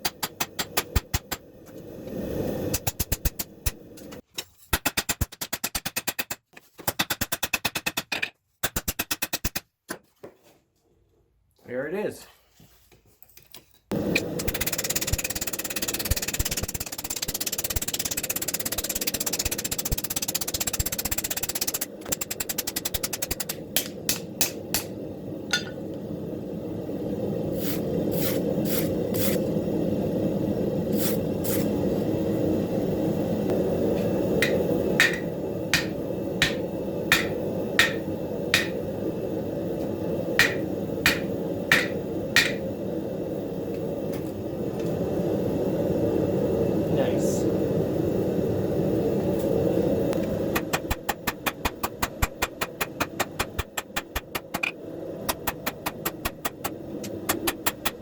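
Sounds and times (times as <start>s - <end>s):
hammer striking steel on anvil: 25.5s - 25.8s, 34.4s - 38.8s, 40.4s - 42.6s.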